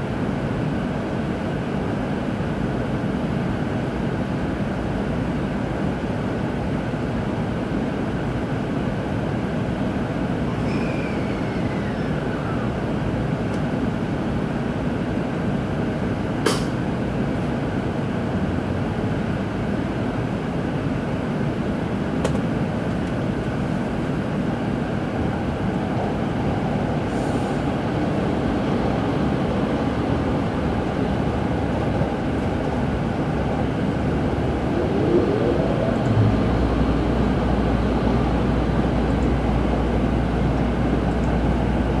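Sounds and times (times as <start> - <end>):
train running inside cabin: 0.0 - 42.0.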